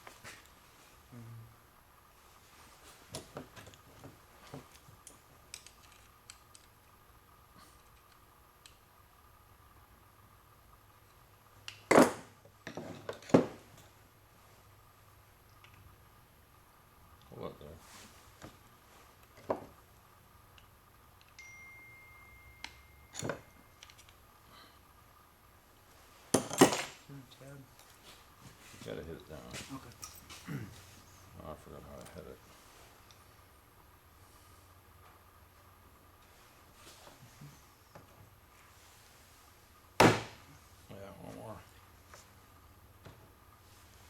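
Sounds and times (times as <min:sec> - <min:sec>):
metal parts and tools clicking: 0:05.5 - 0:06.8, 0:22.6 - 0:24.2.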